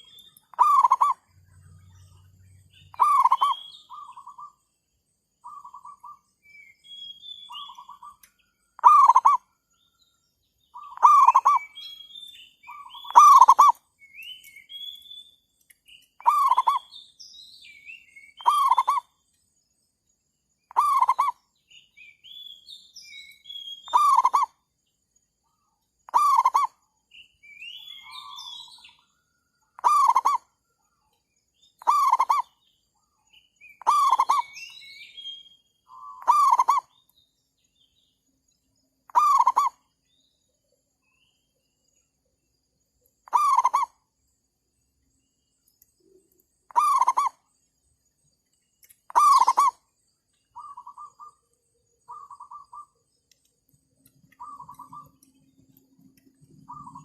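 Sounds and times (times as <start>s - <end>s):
birds chirping: 0.0s - 57.0s
dove cooing: 0.5s - 1.1s, 2.9s - 4.4s, 8.8s - 9.4s, 10.8s - 11.7s, 33.8s - 34.5s, 35.9s - 36.8s, 39.1s - 39.8s, 46.7s - 47.3s, 49.1s - 49.7s, 54.4s - 55.3s, 56.7s - 57.0s.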